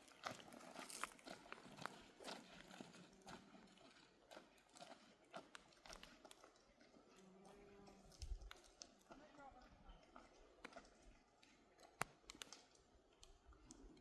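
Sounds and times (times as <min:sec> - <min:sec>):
faint clicks and knocks: 0:05.4 - 0:14.0.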